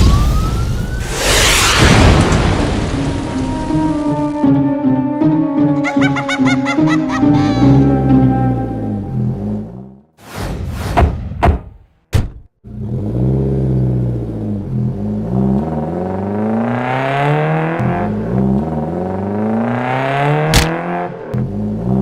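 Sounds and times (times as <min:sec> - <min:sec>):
quick whooshes: 0:01.0 - 0:02.2
sharp crack: 0:01.0 - 0:04.2, 0:20.5 - 0:20.9.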